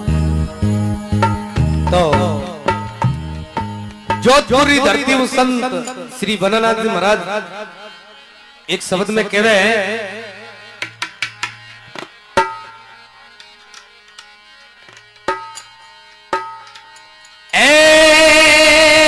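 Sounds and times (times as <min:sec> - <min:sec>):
loud held melodic note: 0:00.0 - 0:08.3
tabla strokes: 0:00.0 - 0:08.4, 0:10.5 - 0:17.5.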